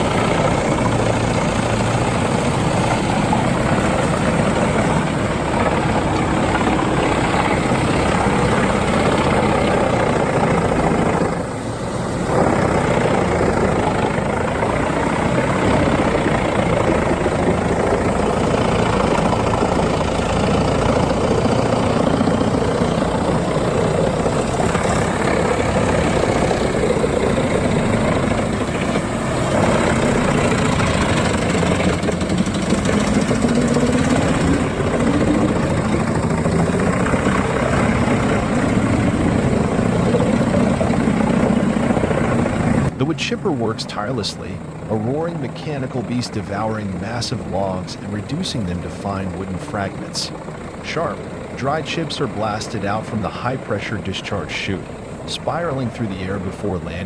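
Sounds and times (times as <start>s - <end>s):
wood chipper running: 0.0s - 55.9s.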